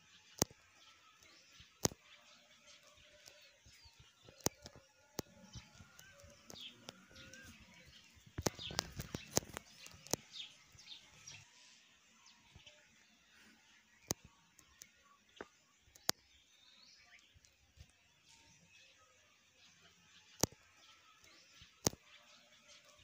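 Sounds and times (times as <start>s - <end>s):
faint bird chirps: 0.0s - 23.0s
sharp clicks and taps: 1.8s - 2.0s, 4.2s - 7.5s, 8.3s - 10.3s.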